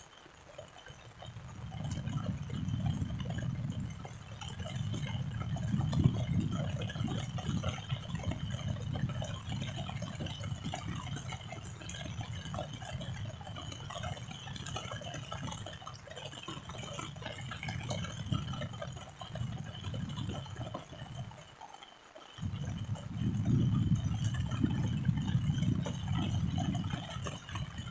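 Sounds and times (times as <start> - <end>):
rain falling: 0.0 - 27.9
raindrops ticking: 0.0 - 27.9
low rumble: 22.4 - 27.0.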